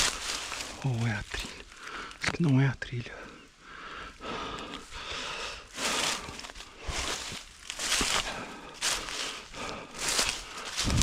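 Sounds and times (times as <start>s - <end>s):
footsteps crunching on forest floor: 0.0s - 2.7s, 4.2s - 11.0s
runner breathing hard: 1.4s - 2.2s, 3.3s - 11.0s.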